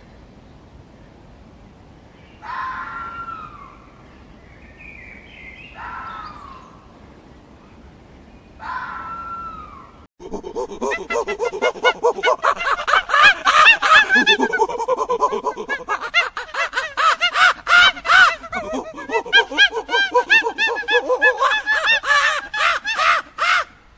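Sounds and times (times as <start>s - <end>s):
flock of birds calling: 0.0s - 10.1s.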